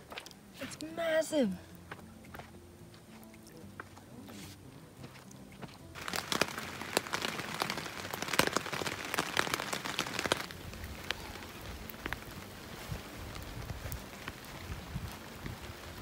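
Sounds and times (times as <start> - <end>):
heavy rain on tent fabric: 3.5 - 16.0.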